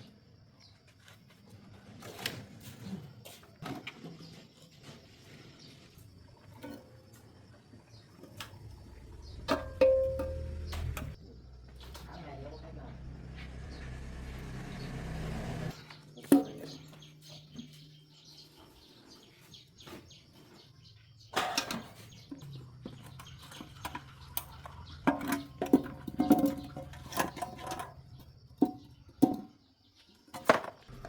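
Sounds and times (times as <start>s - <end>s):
steady low hum: 8.3s - 16.0s
tools and metal parts clinking: 23.0s - 28.8s.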